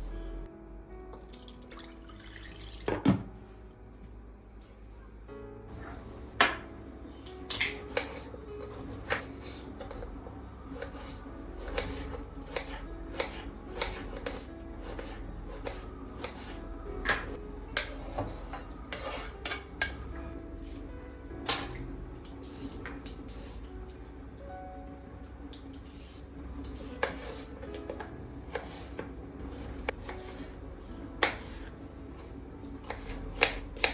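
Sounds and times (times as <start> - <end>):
soft background music: 0.0 - 33.9
dishes and utensils clinking: 17.0 - 20.8.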